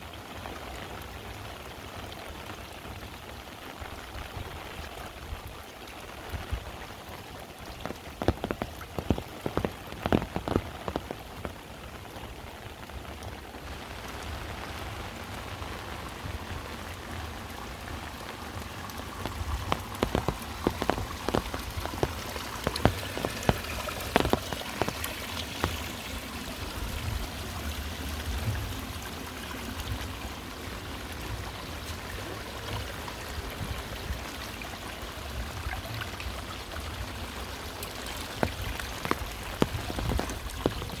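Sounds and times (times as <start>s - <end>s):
heavy rain falling: 0.1s - 41.0s.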